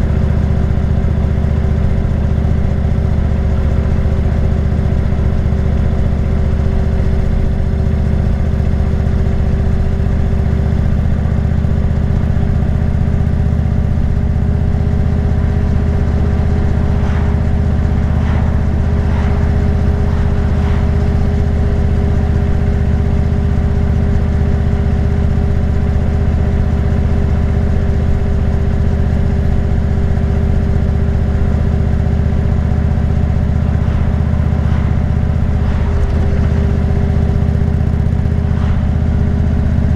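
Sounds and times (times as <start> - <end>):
motorcycle engine cruising: 13.3 - 24.8, 31.3 - 39.9.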